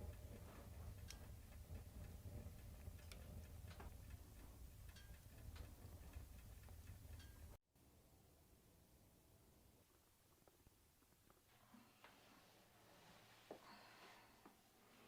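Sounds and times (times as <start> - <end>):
wood fire crackling: 0.0 - 7.6.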